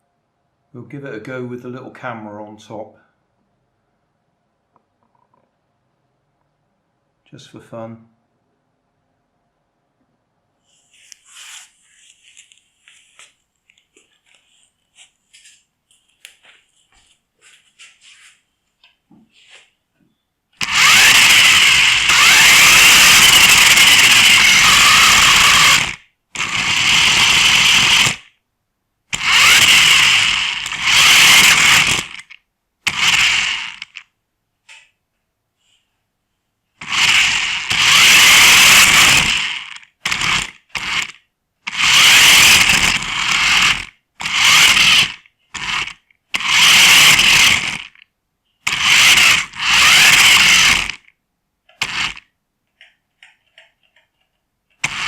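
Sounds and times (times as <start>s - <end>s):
toy car motor and gears whining: 20.6s - 28.3s, 29.1s - 34.0s, 36.8s - 48.0s, 48.6s - 51.1s, 51.7s - 52.3s, 54.7s - 55.0s.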